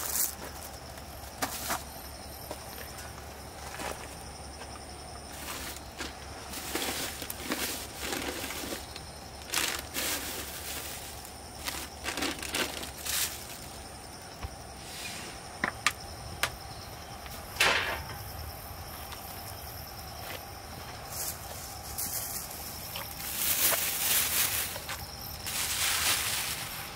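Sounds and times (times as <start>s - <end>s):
rustling and scraping handling noises: 5.3s - 13.9s, 21.1s - 26.9s.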